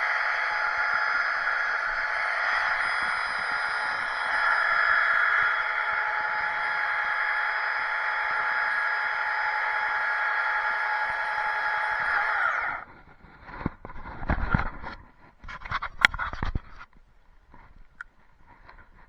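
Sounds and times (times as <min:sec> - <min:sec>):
two-stroke chainsaw running: 0:00.0 - 0:12.8.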